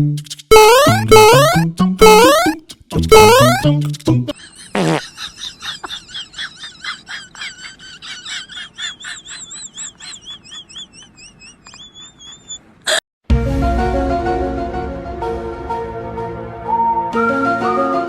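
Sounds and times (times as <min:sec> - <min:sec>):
high wavering chirps: 0:00.2 - 0:03.7
cartoon boing effect: 0:00.5 - 0:03.6.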